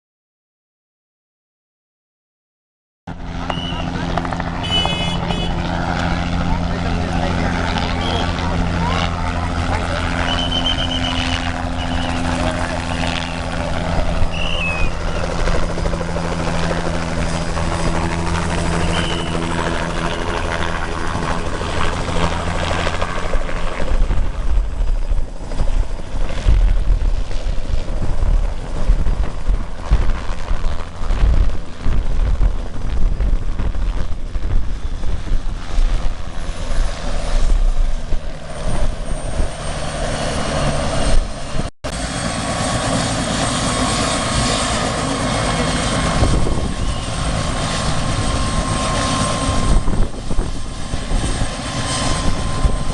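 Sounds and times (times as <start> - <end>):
helicopter engine hum: 3.1 - 52.9
uneven low rumble: 21.4 - 39.7.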